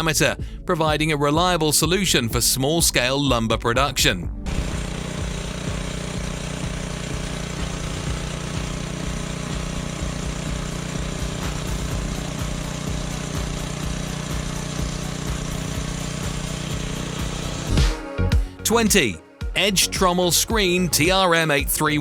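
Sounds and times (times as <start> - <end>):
small gasoline engine running: 4.5 - 17.8.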